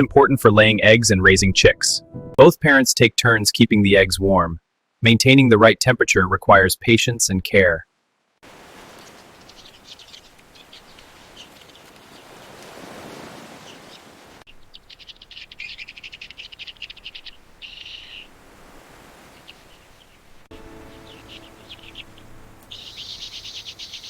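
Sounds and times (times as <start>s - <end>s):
bird chirping: 9.0s - 12.4s, 13.5s - 18.4s, 19.3s - 24.0s
soft background hiss: 14.4s - 24.0s.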